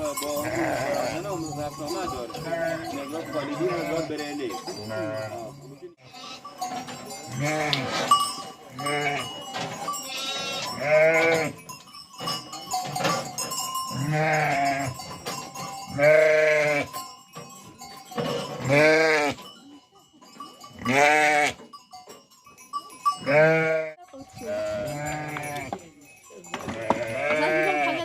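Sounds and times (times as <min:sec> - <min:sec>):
ewes bleating: 0:02.4 - 0:04.0, 0:10.1 - 0:11.5, 0:20.8 - 0:21.6, 0:26.8 - 0:28.0.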